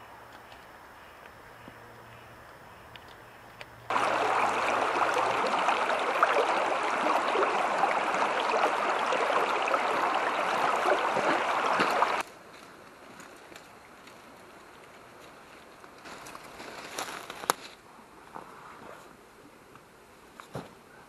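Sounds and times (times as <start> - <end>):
river water running: 3.1 - 12.2.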